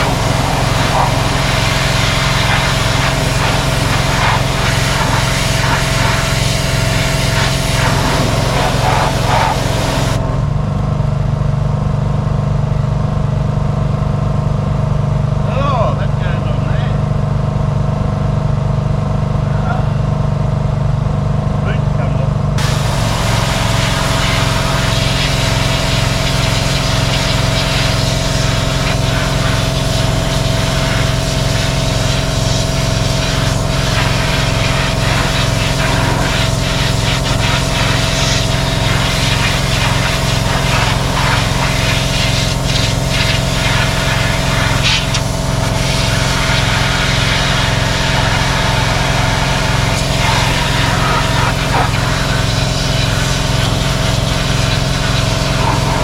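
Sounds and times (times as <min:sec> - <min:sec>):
water spray hissing: 0:00.0 - 0:10.2, 0:22.6 - 0:56.0
pressure washer engine running: 0:00.0 - 0:56.0.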